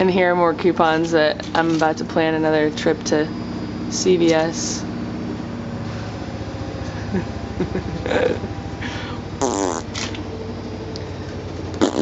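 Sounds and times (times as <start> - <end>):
low appliance hum: 0.0 - 12.0.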